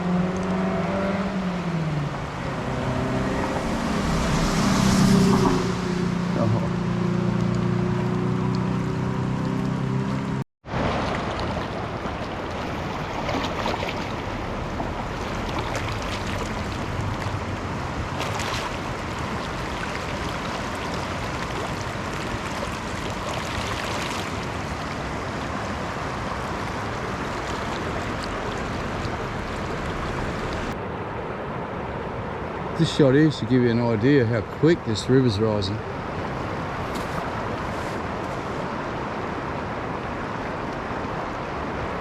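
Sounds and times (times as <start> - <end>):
floodwater rushing in river: 0.0 - 42.0.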